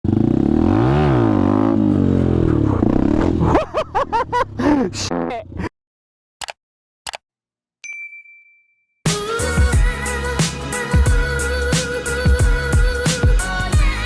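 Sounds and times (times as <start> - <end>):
motorcycle engine revving: 0.0 - 3.6.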